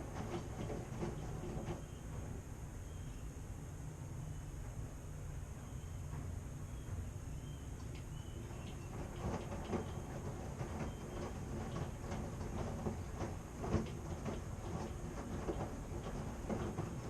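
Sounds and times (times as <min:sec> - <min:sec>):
drum knocking and clunking: 0:00.0 - 0:02.4, 0:07.8 - 0:17.0
washing machine humming: 0:00.0 - 0:17.0.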